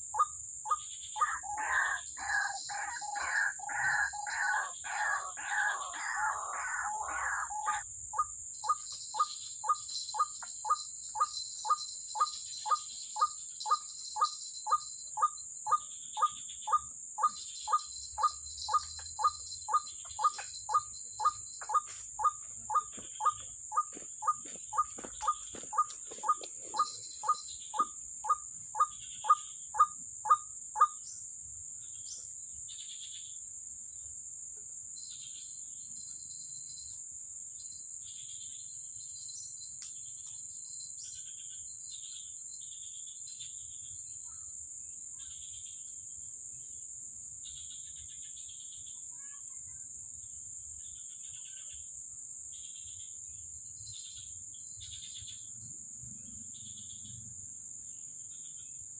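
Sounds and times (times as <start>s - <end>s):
insects buzzing: 0.0s - 44.4s
waterhen calling: 1.2s - 7.8s.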